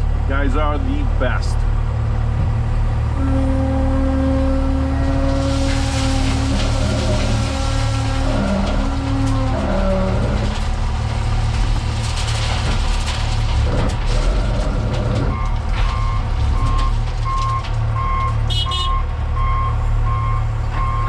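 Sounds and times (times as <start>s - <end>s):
diesel engine rumbling: 0.0s - 21.0s
reversing alarm beeping: 15.3s - 21.0s.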